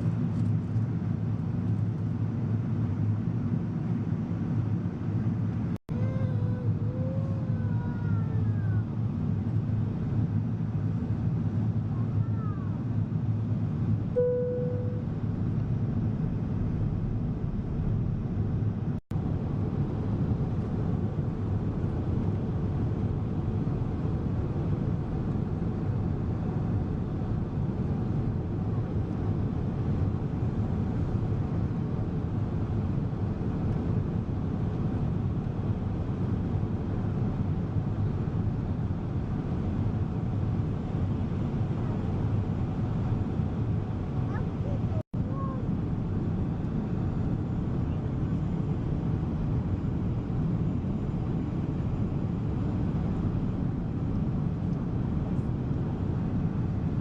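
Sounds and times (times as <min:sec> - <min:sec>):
airliner cabin engine rumble: 0:00.0 - 0:57.0
brief clear tone: 0:14.2 - 0:15.1.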